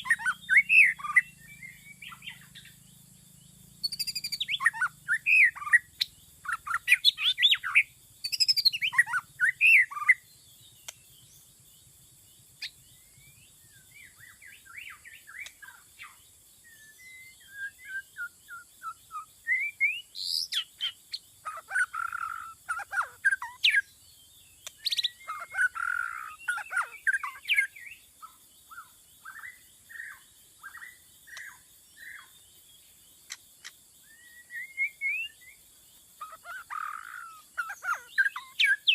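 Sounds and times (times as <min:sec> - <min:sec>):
bird singing whistled phrases: 0:00.0 - 0:02.7, 0:03.8 - 0:05.9, 0:06.5 - 0:10.2, 0:16.6 - 0:23.9, 0:34.0 - 0:35.6, 0:36.2 - 0:38.9.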